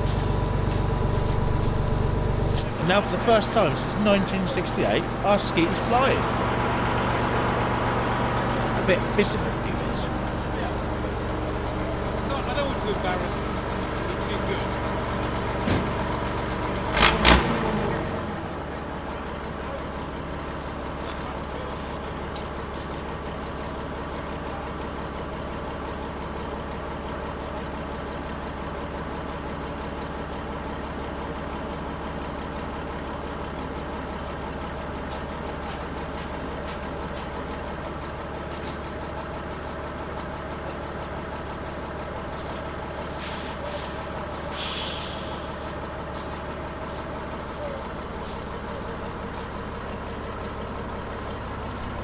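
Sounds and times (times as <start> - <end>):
truck diesel engine running: 0.0 - 52.0
air hiss: 44.6 - 45.6.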